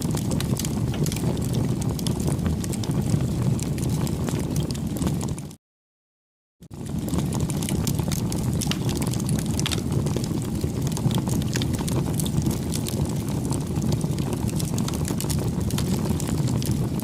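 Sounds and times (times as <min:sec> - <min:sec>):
bonfire crackling and popping: 0:00.0 - 0:05.6, 0:06.6 - 0:17.0
low fire rumble: 0:00.0 - 0:05.6, 0:06.6 - 0:17.0.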